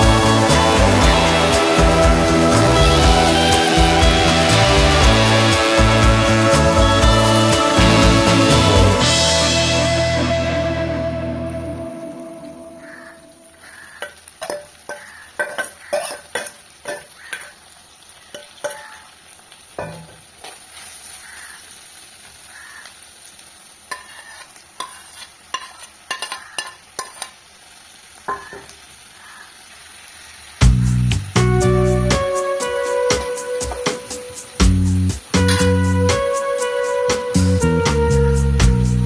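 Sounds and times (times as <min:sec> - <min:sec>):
food sizzling in a pan: 0:00.0 - 0:39.0
spoon clinking and scraping pan: 0:13.7 - 0:17.7, 0:18.3 - 0:19.1, 0:19.8 - 0:20.6, 0:23.9 - 0:27.4, 0:28.3 - 0:28.7.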